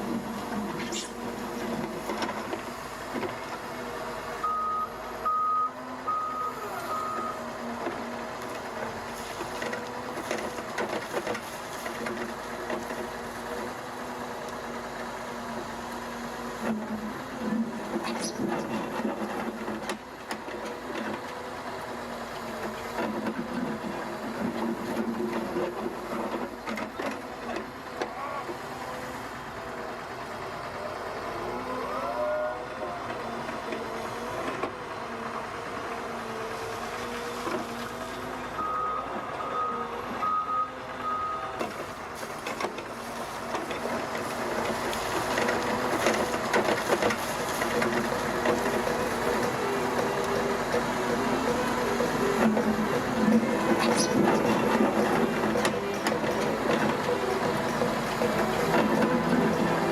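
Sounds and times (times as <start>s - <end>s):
short beeps: 4.4s - 7.4s
machinery humming: 43.0s - 59.9s.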